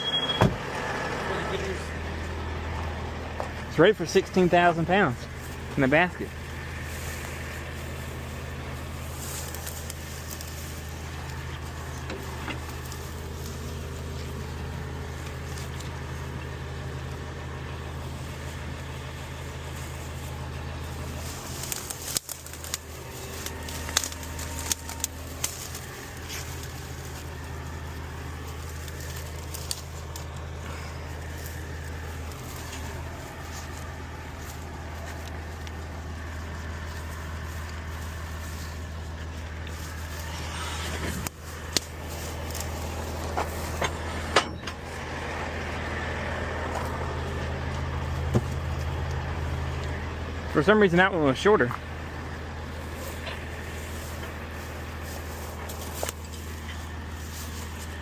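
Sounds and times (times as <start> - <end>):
heavy engine idling: 0.0 - 58.0.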